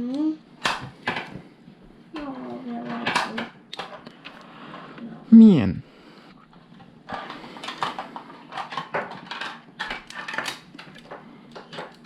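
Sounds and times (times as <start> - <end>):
plastic pieces clattering: 7.2 - 12.0.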